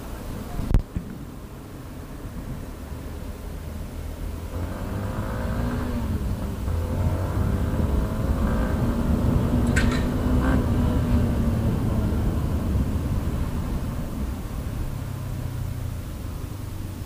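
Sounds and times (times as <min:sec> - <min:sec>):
wind rumble on microphone: 0:00.0 - 0:17.0
motorcycle engine accelerating: 0:04.1 - 0:16.4.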